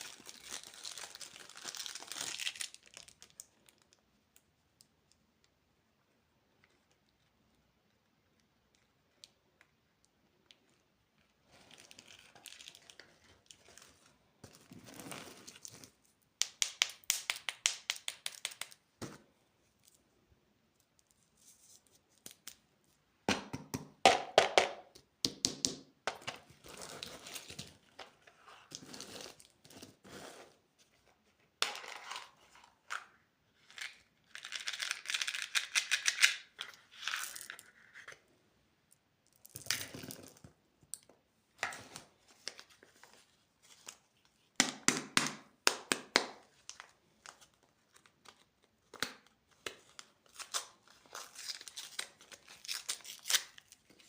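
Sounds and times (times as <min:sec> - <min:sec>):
plastic candy wrappers crinkling: 0:00.0 - 0:04.5, 0:10.4 - 0:14.0, 0:33.5 - 0:38.1, 0:46.3 - 0:54.0.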